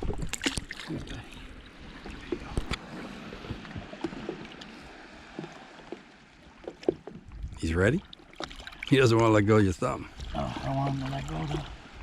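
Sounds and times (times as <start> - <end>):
water lapping against hull: 0.0 - 12.0
clicks and knocks on boat: 2.0 - 2.8, 5.3 - 7.6.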